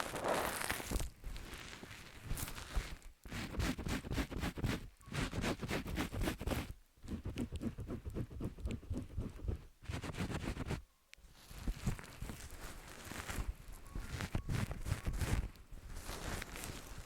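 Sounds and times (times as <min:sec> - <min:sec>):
fingers rubbing ears: 0:02.3 - 0:10.8, 0:11.5 - 0:17.0.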